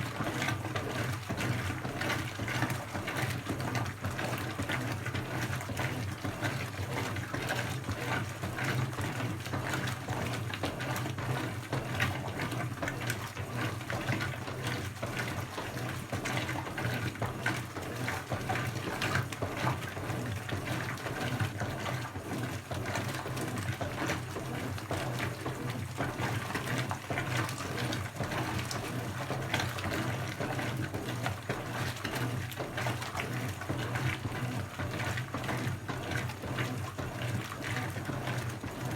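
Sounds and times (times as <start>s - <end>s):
washing machine low hum: 0.0s - 38.9s
water rushing into tub: 9.4s - 38.9s.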